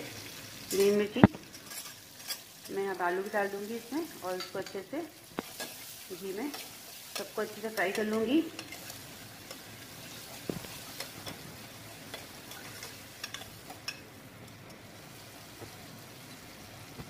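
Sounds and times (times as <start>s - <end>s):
potatoes sizzling: 0.0s - 17.0s
ladle clinking and scraping pot: 0.7s - 2.8s, 6.5s - 11.4s, 12.1s - 14.1s.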